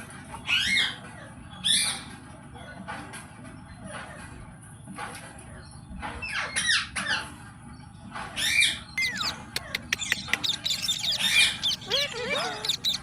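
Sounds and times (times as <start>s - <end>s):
parrot squawking and chirping: 0.4s - 2.1s, 8.4s - 13.0s
parrot clicking: 9.0s - 13.0s.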